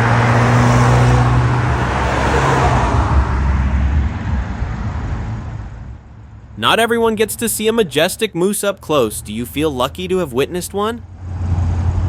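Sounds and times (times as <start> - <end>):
loud rushing noise: 0.0 - 6.6
low engine hum: 0.0 - 12.0.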